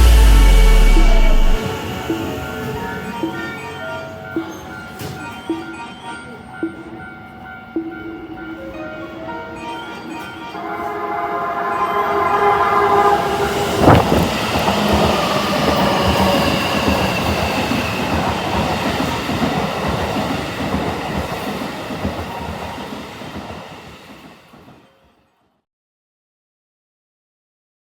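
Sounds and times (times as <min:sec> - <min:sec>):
train wheels clattering: 0:09.6 - 0:25.0
train horn: 0:10.5 - 0:18.2.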